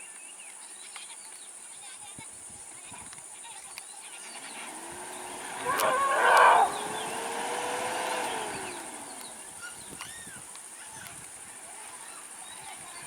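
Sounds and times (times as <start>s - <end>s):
elephant trumpeting: 4.4s - 9.1s.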